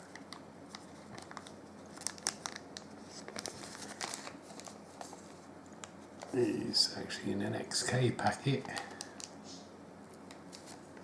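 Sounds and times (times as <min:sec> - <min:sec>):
plastic packet rustling: 0:00.0 - 0:05.5.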